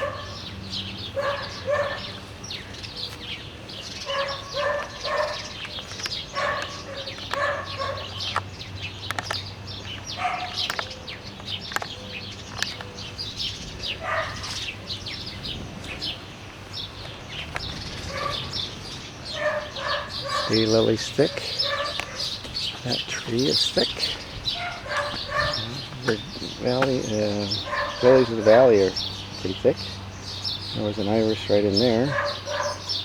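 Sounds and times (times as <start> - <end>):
songbirds chirping: 0.0 - 33.0.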